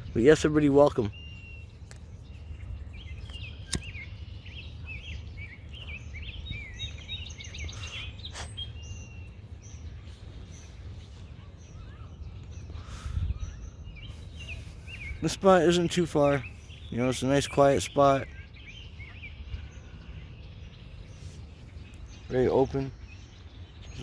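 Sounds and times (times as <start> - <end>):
songbirds chirping: 0.0 - 24.0
sharp click: 3.2 - 4.1.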